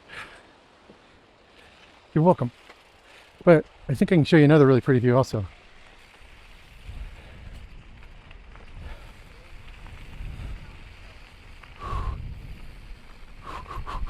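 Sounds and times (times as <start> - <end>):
wind buffeting microphone: 5.7 - 14.0.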